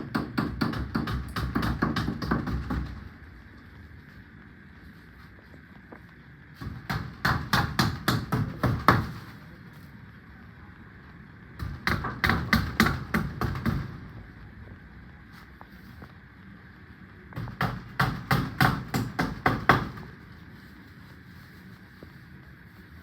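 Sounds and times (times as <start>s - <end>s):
hammer driving nails: 0.0s - 3.0s, 6.6s - 9.2s.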